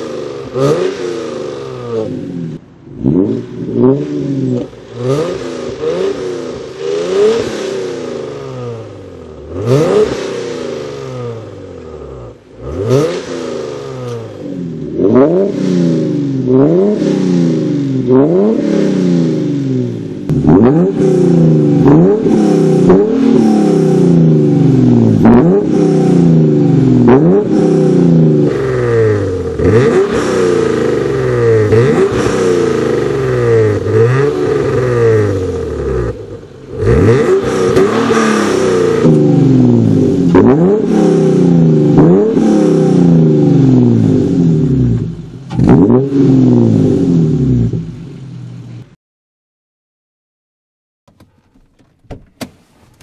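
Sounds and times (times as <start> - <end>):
car engine revving: 0.0 - 48.8.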